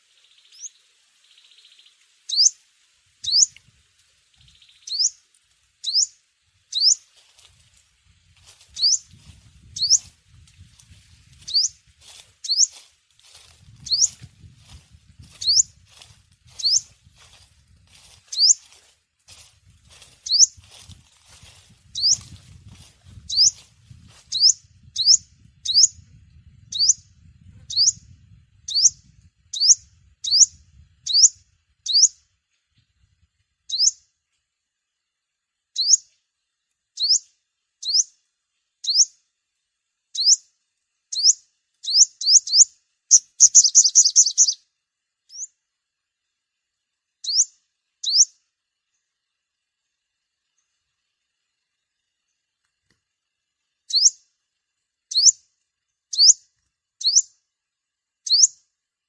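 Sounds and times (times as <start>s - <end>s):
bird chirping and chattering: 1.4s - 2.6s, 3.2s - 3.6s, 4.4s - 5.2s, 5.8s - 7.1s, 8.7s - 9.1s, 9.7s - 10.1s, 11.4s - 11.8s, 12.4s - 12.8s, 13.8s - 17.3s, 17.9s - 18.8s, 19.9s - 20.9s, 21.9s - 23.7s, 24.3s - 26.0s, 26.6s - 32.2s, 33.6s - 34.0s, 35.8s - 36.1s, 37.0s - 38.2s, 38.8s - 39.2s, 40.1s - 40.4s, 41.1s - 44.6s, 47.2s - 48.4s, 53.9s - 54.3s, 55.1s - 55.5s, 56.1s - 57.4s, 58.2s - 58.6s.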